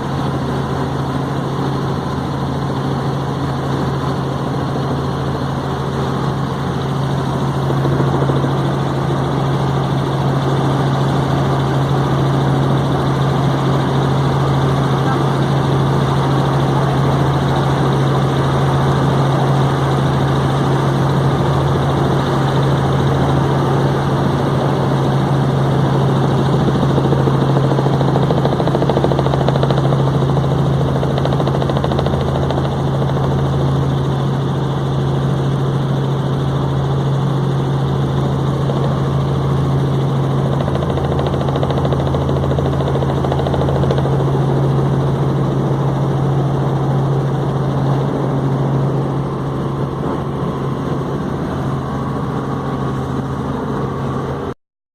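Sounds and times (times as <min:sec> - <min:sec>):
helicopter rotor hum: 0:00.0 - 0:54.6.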